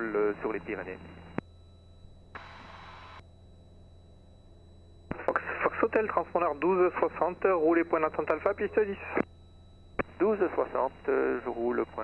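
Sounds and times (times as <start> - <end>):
low steady hum: 0.0 - 12.0
radio carrier hiss: 2.4 - 3.2, 5.1 - 6.1.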